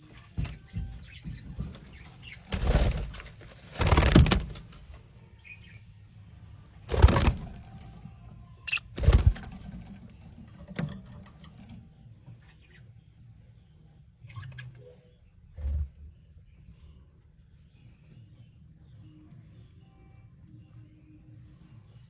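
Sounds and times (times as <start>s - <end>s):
bird flapping wings: 2.2s - 4.8s, 6.9s - 7.7s, 8.9s - 10.0s
faint bird chirps: 7.7s - 9.2s, 11.7s - 22.0s.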